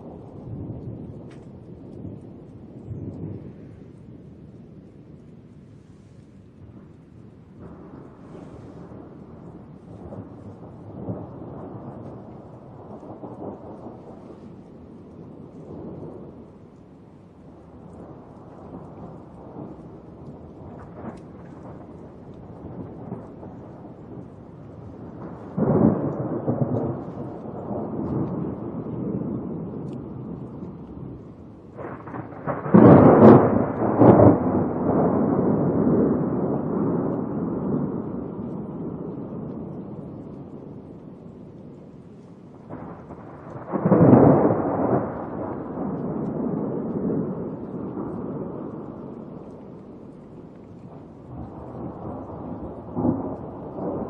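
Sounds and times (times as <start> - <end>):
steady rain: 0.0 - 54.0
thunder rumbling: 0.0 - 54.0
loud thunderclap: 17.9 - 41.4, 42.5 - 54.0.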